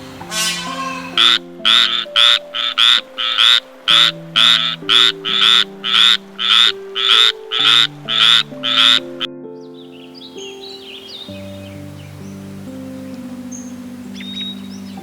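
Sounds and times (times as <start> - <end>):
soft background music: 0.0 - 15.0
frog croaking: 0.3 - 9.3.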